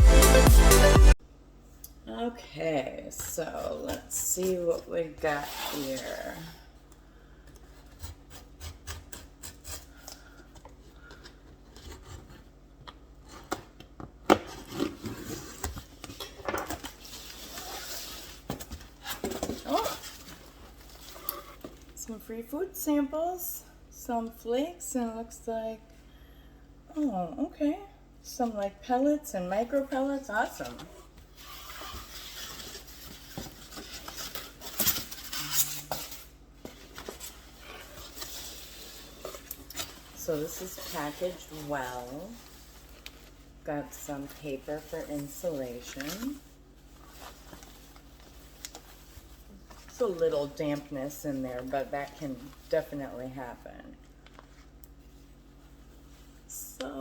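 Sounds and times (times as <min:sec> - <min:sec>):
package contents rustling and clattering: 0:30.6 - 0:50.6.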